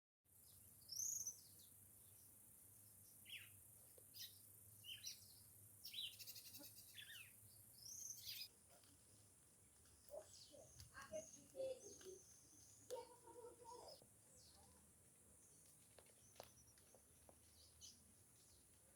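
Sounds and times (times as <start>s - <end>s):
bird chirps and whistled calls: 5.8s - 8.5s.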